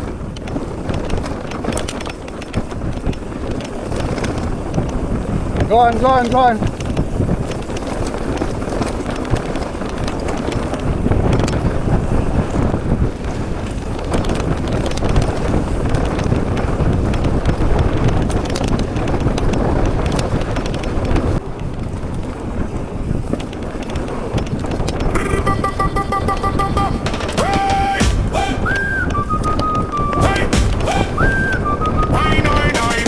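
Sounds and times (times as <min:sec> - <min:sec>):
bike clicking and rattling: 0:00.0 - 0:25.1
wind buffeting microphone: 0:00.0 - 0:25.2, 0:28.6 - 0:32.7.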